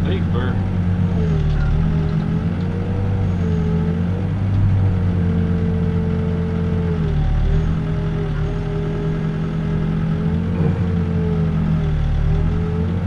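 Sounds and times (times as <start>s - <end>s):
diesel engine under load: 0.0s - 13.0s
hydraulic whine: 7.1s - 12.8s.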